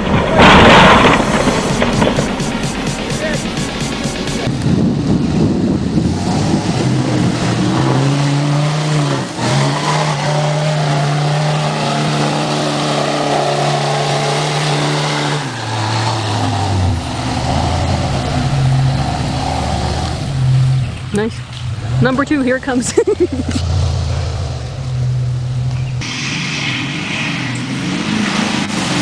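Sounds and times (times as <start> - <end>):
vehicle engine running: 0.0 - 7.5, 16.8 - 29.0.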